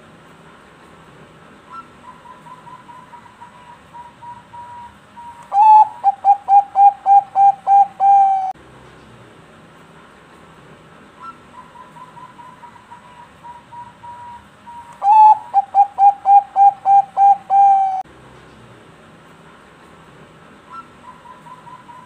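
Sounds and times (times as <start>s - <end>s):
dove cooing: 1.7s - 8.6s, 15.0s - 18.0s.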